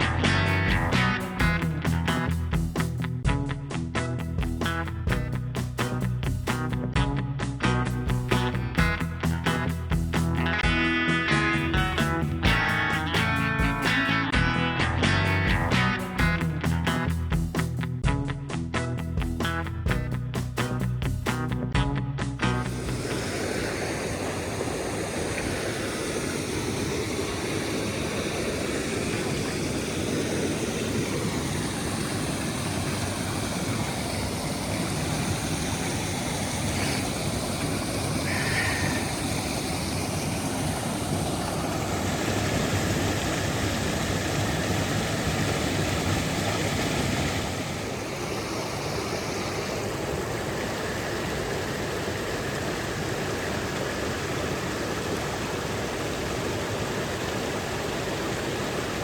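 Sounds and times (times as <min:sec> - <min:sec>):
creek water rushing: 0:00.0 - 0:03.0, 0:08.1 - 0:17.8, 0:22.4 - 0:59.0.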